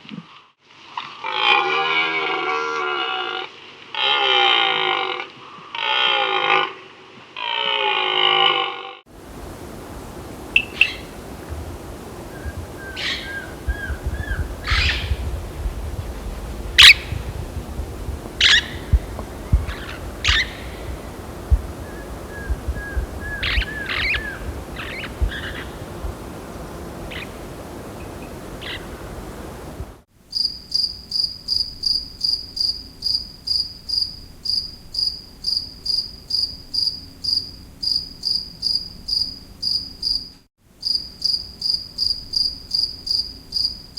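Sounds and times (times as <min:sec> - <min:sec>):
birds chirping: 0:09.2 - 0:30.0
cricket chirping: 0:09.2 - 0:43.9
low rumble: 0:09.3 - 0:30.0.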